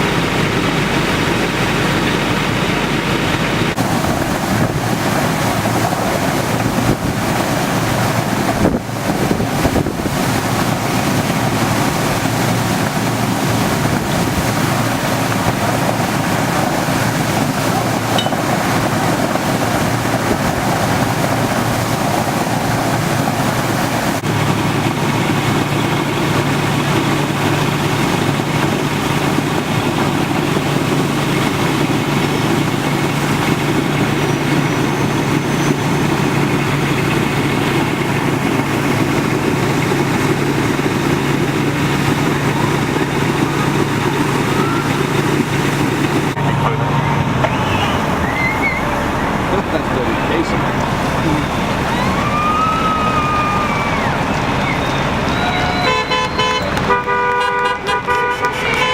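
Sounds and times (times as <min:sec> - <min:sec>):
rushing noise: 0:00.0 - 0:58.9
vehicle engine idling: 0:00.0 - 0:58.9.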